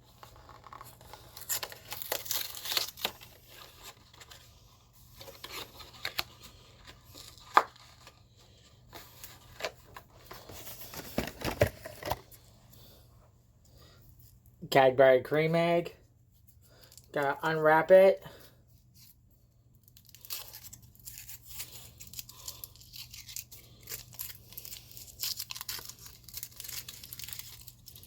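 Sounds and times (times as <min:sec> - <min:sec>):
packaging being torn and crinkled: 0:00.0 - 0:04.4, 0:05.2 - 0:08.2, 0:19.8 - 0:28.0.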